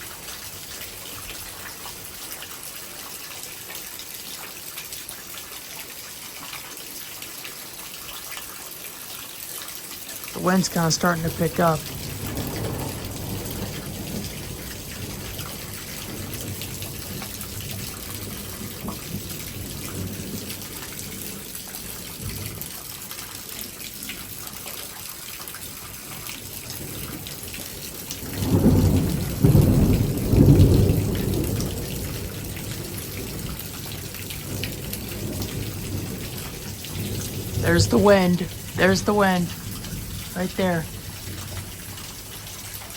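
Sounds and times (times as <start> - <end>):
heavy rain: 0.0 - 42.9
thunder rumbling: 10.6 - 21.4, 26.8 - 42.5.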